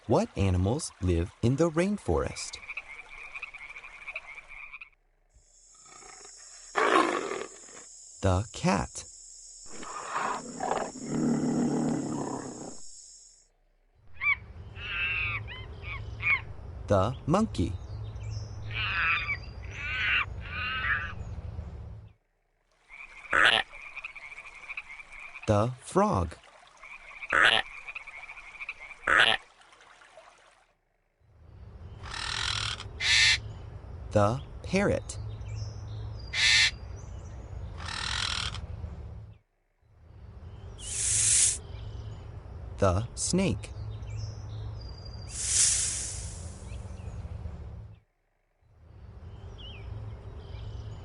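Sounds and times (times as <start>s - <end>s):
frog croaks: 2.5s - 8.0s, 9.6s - 13.4s, 14.1s - 16.6s, 18.6s - 21.2s, 22.8s - 25.6s, 26.8s - 29.5s, 32.0s - 33.5s, 36.3s - 36.8s, 37.7s - 38.7s
harsh frog call: 2.5s - 13.5s, 14.1s - 16.6s, 18.6s - 21.2s, 22.8s - 25.6s, 26.8s - 29.5s, 32.0s - 33.5s, 36.2s - 36.8s, 37.7s - 38.7s
pulsing frog trill: 5.5s - 13.4s
big cat roaring: 9.8s - 12.8s.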